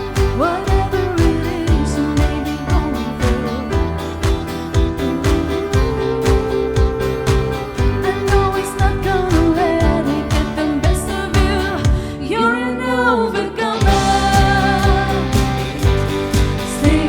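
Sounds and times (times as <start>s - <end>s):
praise song with band: 0.0s - 12.3s, 12.9s - 17.0s
lead singer: 0.0s - 17.0s
steady drum beat: 13.8s - 17.0s.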